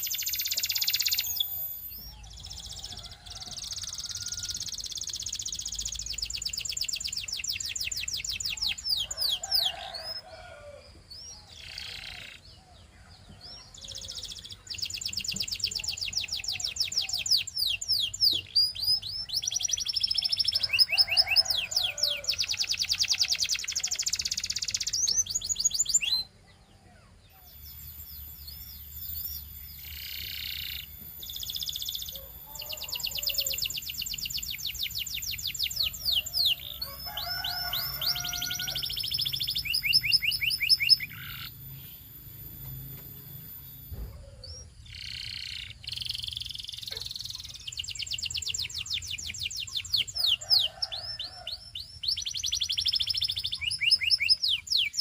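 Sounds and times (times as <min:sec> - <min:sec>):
canary singing trills: 0:00.0 - 0:55.0
faint high whine: 0:38.8 - 0:44.7.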